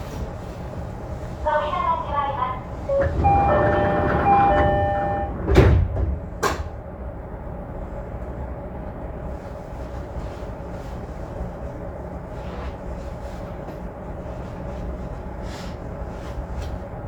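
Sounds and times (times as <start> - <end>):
train equipment hum: 0.0 - 17.0
sliding doors thudding shut: 2.9 - 6.8
multi-note door chime: 3.0 - 5.3.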